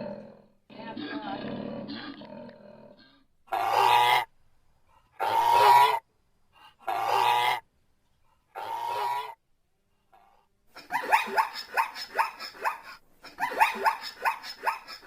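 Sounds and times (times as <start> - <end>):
animal calling: 3.5 - 4.3, 5.2 - 6.0, 6.8 - 7.7, 8.5 - 9.4, 10.8 - 15.0.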